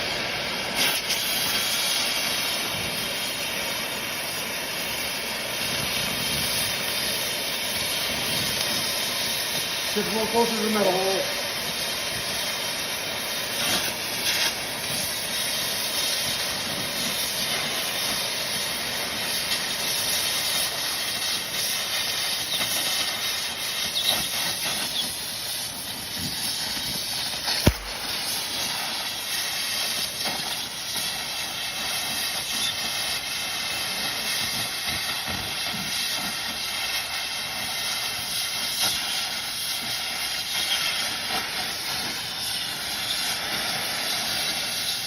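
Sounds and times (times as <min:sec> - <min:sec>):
welding arc hissing: 0:00.0 - 0:45.0
sharp knock: 0:27.6 - 0:28.2.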